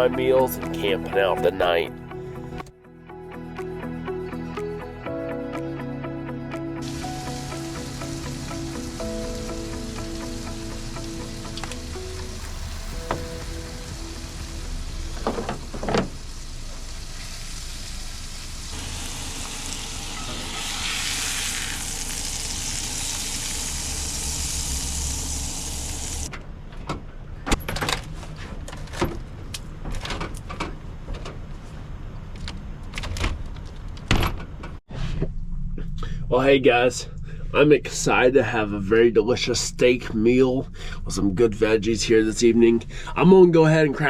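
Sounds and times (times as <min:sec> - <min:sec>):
food sizzling in a skillet: 0:06.8 - 0:26.3.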